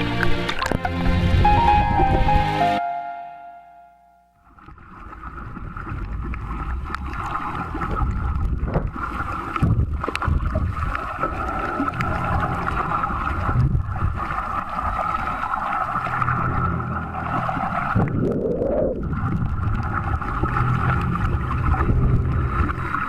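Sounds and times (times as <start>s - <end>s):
underwater gurgling rumble: 5.1s - 23.0s.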